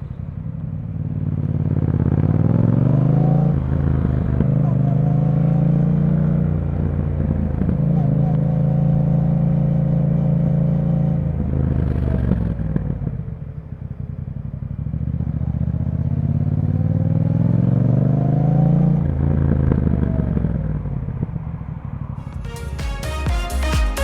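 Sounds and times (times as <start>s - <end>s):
motorcycle engine: 0.0s - 18.4s.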